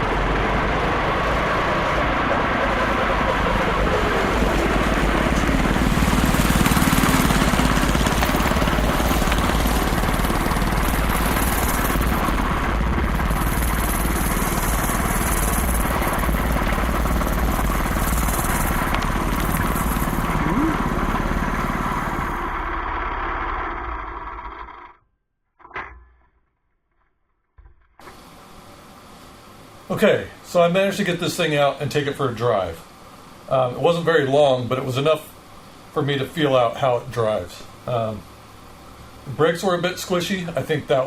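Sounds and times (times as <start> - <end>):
go-kart engine running: 0.0 - 25.0.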